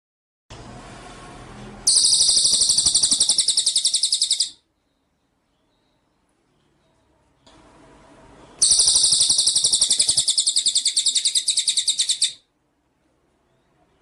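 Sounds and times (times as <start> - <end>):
songbird rapid trill: 1.9 - 4.6, 8.6 - 12.4.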